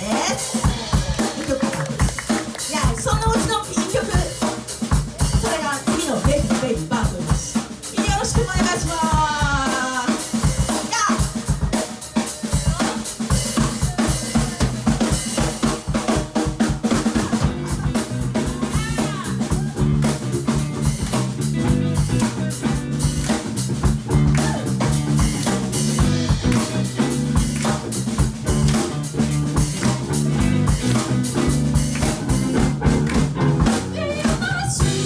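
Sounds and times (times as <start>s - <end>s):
drum kit beat: 0.0s - 35.0s
rock band playing: 0.0s - 35.0s.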